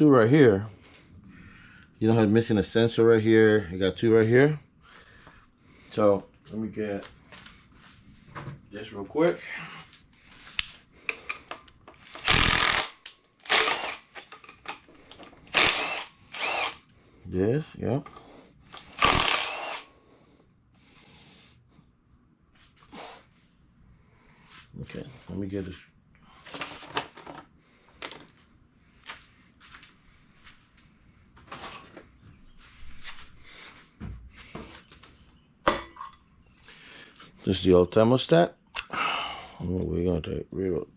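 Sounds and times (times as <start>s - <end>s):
power drill whirring in bursts: 12.2s - 14.1s, 15.5s - 16.9s, 18.9s - 19.9s.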